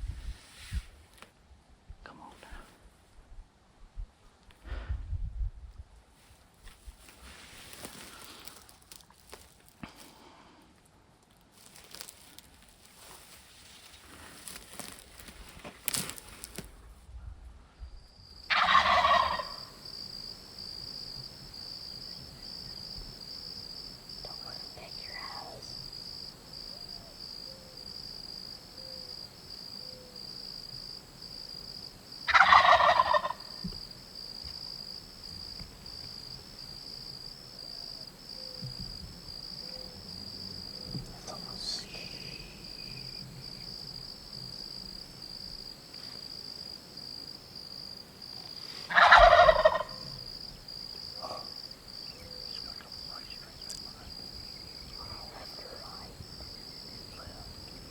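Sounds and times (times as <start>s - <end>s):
turkey gobbling: 18.5s - 19.7s, 32.3s - 33.6s, 48.9s - 50.2s.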